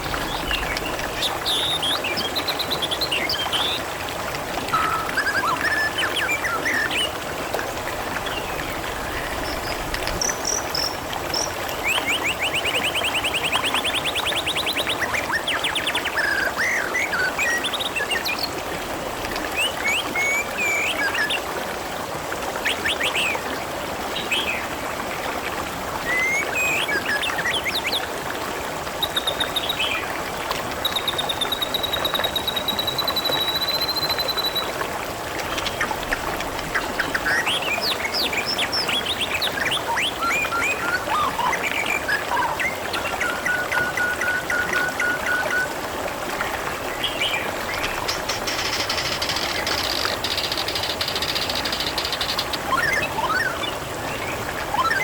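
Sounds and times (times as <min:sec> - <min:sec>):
water trickling and splashing: 0:00.0 - 0:55.0
small birds chirping: 0:47.0 - 0:55.0.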